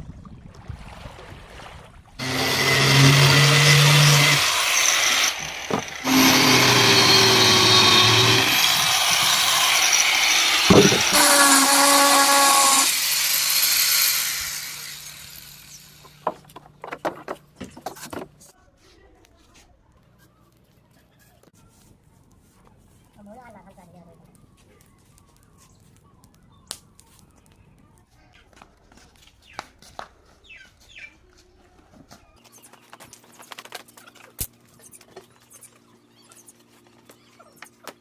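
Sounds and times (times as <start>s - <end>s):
power tool motor running: 2.2s - 16.2s
sharp knocks: 10.6s - 11.2s.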